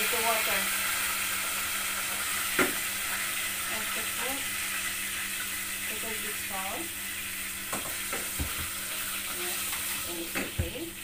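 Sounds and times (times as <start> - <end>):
noodles sizzling in hot oil: 0.0 - 11.0
wooden spoon knocking on pot: 7.7 - 8.8.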